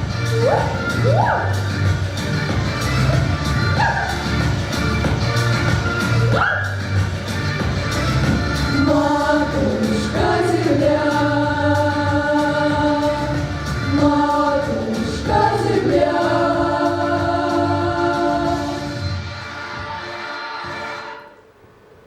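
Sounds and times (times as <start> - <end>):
vocal ensemble singing harmony: 8.0 - 21.4.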